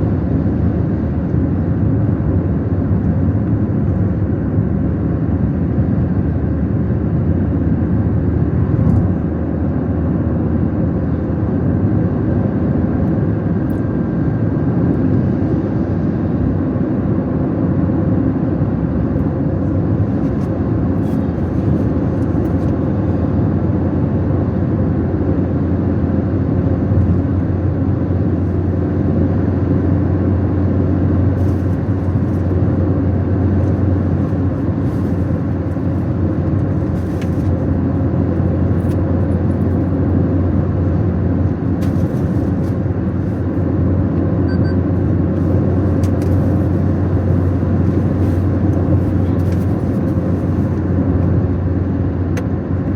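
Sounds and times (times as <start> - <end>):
road noise: 0.0 - 52.9
car engine: 26.5 - 52.9.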